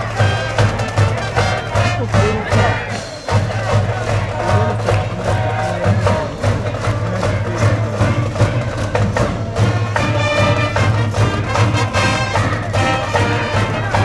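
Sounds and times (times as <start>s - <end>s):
brass band playing: 0.0s - 14.0s
regular drum beat: 0.0s - 14.0s.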